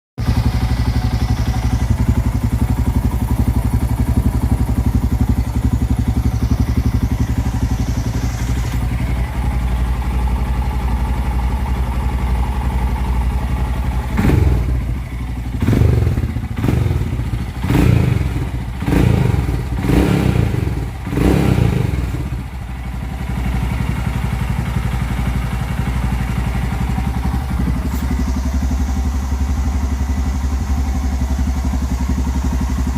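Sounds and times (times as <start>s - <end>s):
motorcycle engine idling and revving: 0.2s - 32.9s.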